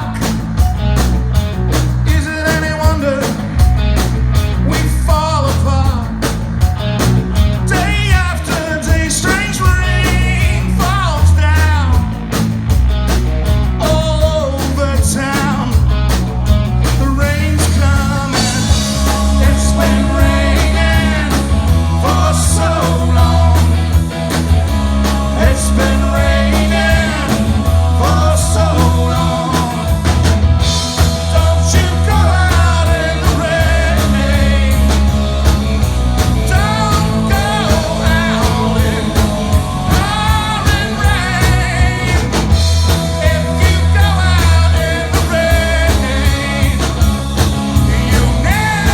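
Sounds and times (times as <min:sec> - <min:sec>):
bass line: 0:00.0 - 0:48.9
rock band playing live: 0:00.0 - 0:48.9
person singing: 0:17.0 - 0:24.0, 0:24.9 - 0:30.3, 0:31.0 - 0:35.1, 0:36.4 - 0:47.1, 0:47.8 - 0:48.9.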